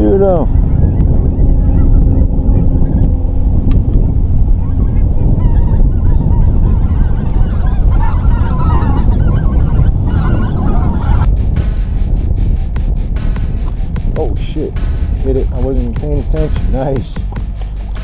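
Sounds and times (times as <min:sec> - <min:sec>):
wind rumble on microphone: 0:00.0 - 0:18.0
geese honking: 0:04.6 - 0:11.3.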